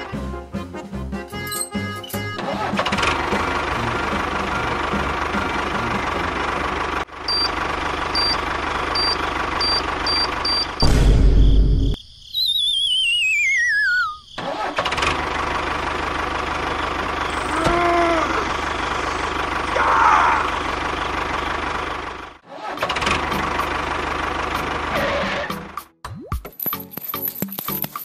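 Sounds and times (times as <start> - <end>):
tractor engine running: 0.0 - 11.2, 14.4 - 25.8
descending wavering whistle: 12.3 - 14.3.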